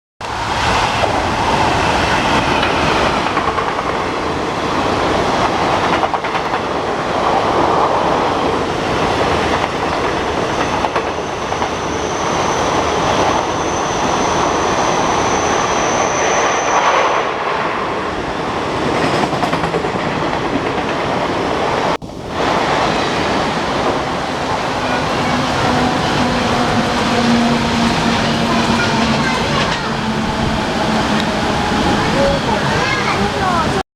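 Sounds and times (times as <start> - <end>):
rush of train noise: 0.2 - 33.8
train wheels clattering: 22.1 - 33.8.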